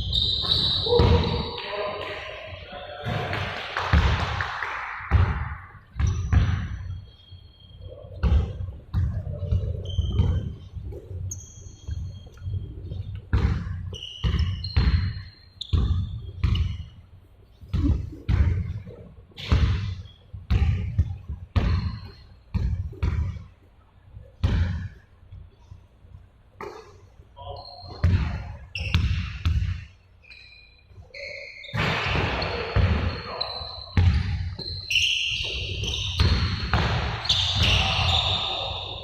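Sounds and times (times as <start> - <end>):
basketballs bouncing on hard floor: 0.0 - 1.5, 3.0 - 7.0, 8.1 - 16.9, 17.7 - 23.5, 24.4 - 25.0, 27.9 - 29.9, 31.7 - 38.5
short high squeaks: 9.8 - 12.8, 27.4 - 28.0, 30.2 - 31.8, 32.4 - 38.8.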